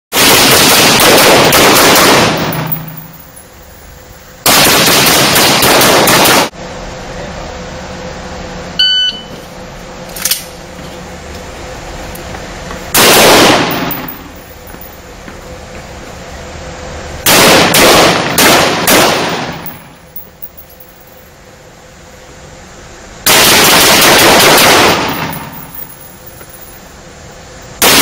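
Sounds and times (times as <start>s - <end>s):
rifle firing rapid bursts: 0.2s - 2.9s, 4.4s - 6.5s, 13.0s - 14.1s, 17.3s - 19.6s, 23.3s - 25.6s.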